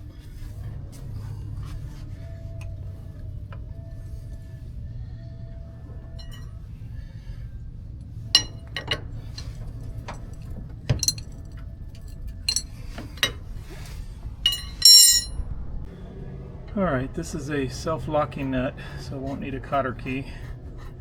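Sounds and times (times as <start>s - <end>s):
low steady hum: 0.0s - 18.0s
metal tools clinking: 8.4s - 9.6s, 10.9s - 11.5s, 12.5s - 13.4s, 14.4s - 15.4s.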